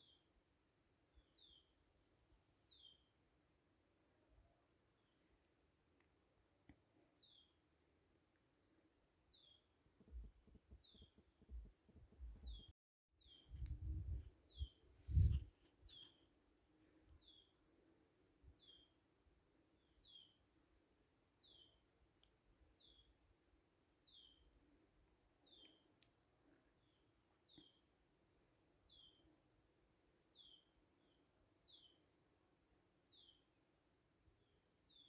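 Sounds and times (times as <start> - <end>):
bird chirping: 6.6 - 25.8.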